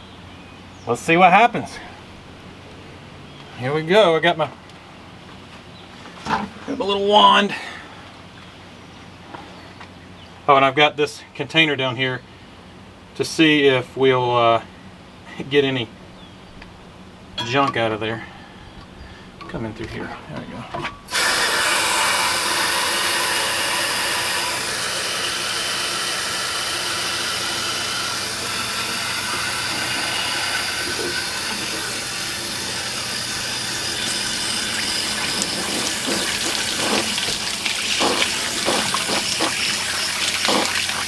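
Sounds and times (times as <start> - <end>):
water spraying into a tank: 21.1 - 41.0.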